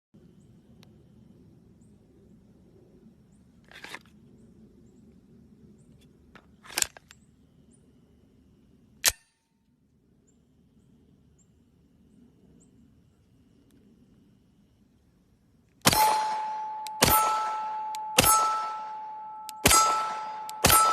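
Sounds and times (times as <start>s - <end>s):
pistol sharp click: 15.8s - 20.9s.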